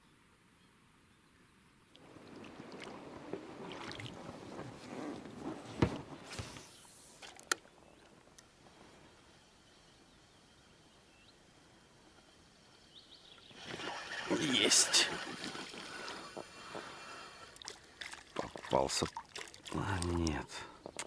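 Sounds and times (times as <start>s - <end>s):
water splashing and sloshing: 1.9s - 8.2s, 13.5s - 21.0s.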